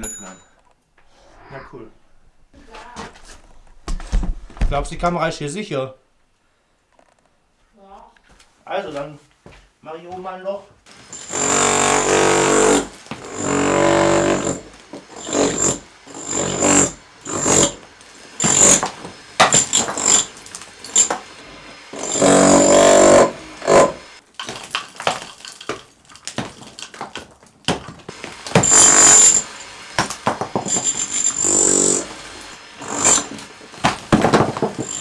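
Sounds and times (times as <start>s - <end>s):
brick knocking and clattering: 10.9s - 35.0s
demolition hammer breaking brick: 10.9s - 35.0s.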